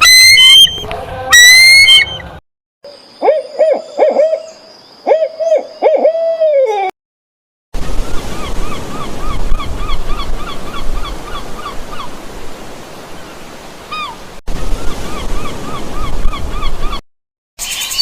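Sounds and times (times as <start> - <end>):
animal chirping calls: 0.0 - 2.3.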